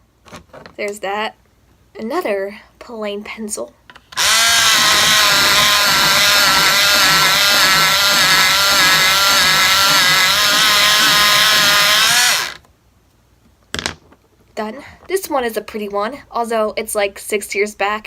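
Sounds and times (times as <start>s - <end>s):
electric pencil sharpener whining: 4.2s - 12.6s.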